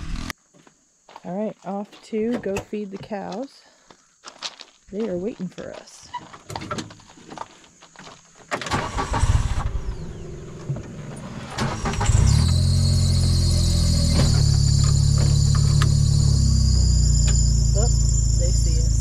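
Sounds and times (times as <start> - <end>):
utility vehicle engine: 8.6 - 19.0.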